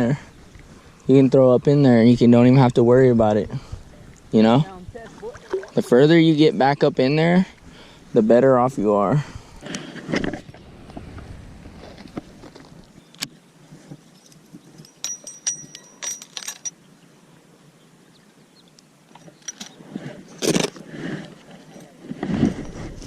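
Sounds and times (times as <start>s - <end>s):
splashing water: 5.0s - 6.0s
fishing tackle clicking and jingling: 14.2s - 16.8s.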